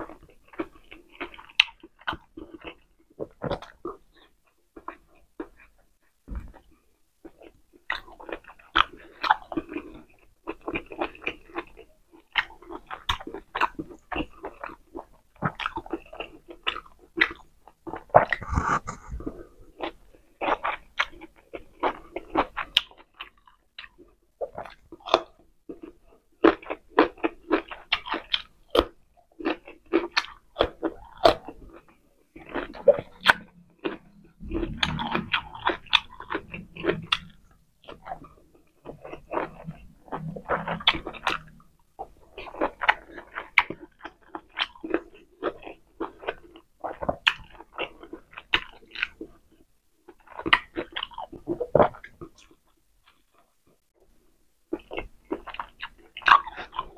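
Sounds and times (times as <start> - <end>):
close chewing and mouth smacks: 0.0 - 56.9.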